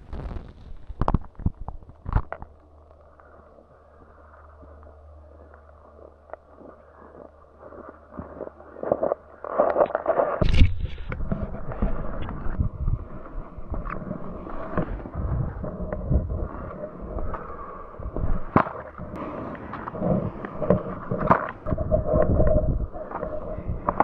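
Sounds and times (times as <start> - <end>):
sharp knocks and crackles: 0.0 - 3.1, 5.5 - 13.0
wind buffeting microphone: 10.4 - 24.0.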